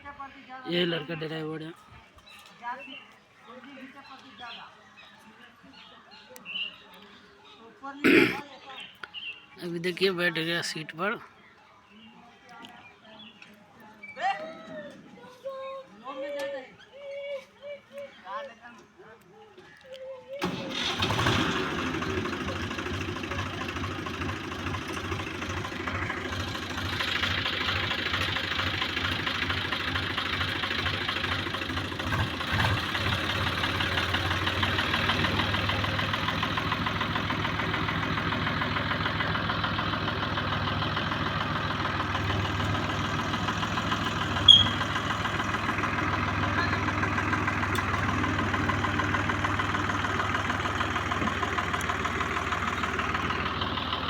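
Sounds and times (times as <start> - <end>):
tractor diesel engine running: 20.4 - 54.0.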